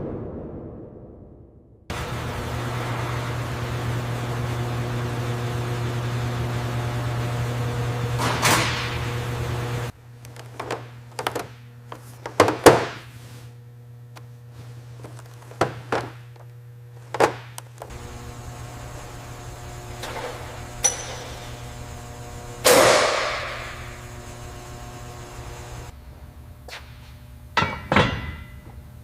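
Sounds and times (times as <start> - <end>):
steady low hum: 1.9 - 29.0
metal clang ringing out: 27.6 - 28.6
metal tools knocking and clunking: 27.6 - 28.6.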